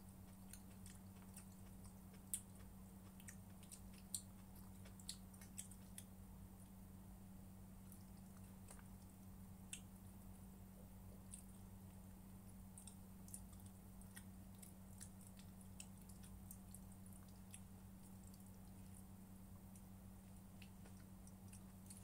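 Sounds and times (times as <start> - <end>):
low electrical hum: 0.0 - 22.0
person chewing with mouth clicks: 0.2 - 6.1, 11.1 - 22.0.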